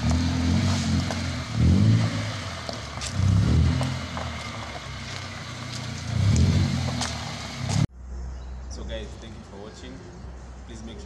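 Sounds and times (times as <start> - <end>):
car engine revving in blips: 0.0 - 7.9.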